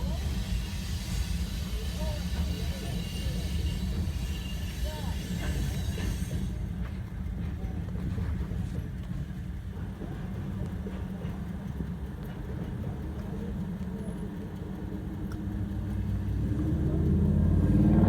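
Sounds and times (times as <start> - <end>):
heavy vehicle engines rumbling: 0.0 - 18.0.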